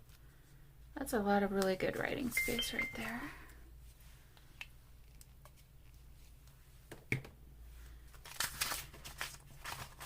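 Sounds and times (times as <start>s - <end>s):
low steady hum: 0.0s - 10.0s
paper rustling: 8.1s - 10.0s.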